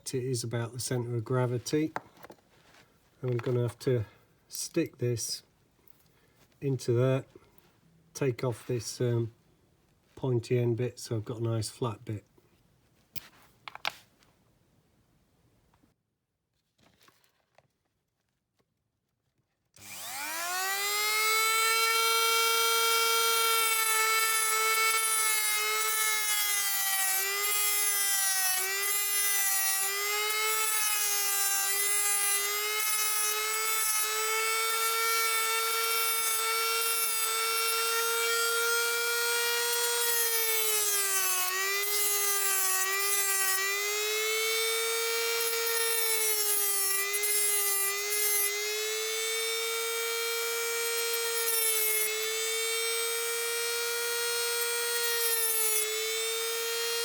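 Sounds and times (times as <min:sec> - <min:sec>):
rotary power tool whining: 0:19.8 - 0:57.0.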